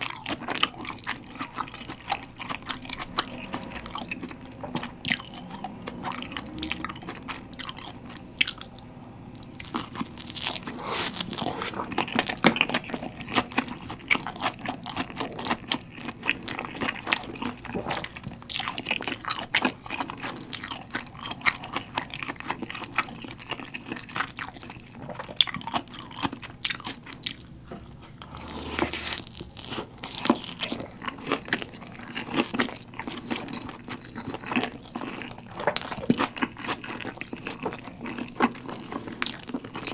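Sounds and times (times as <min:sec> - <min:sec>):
person chewing pizza: 0:00.0 - 0:39.9
wet mouth sounds: 0:10.0 - 0:14.0.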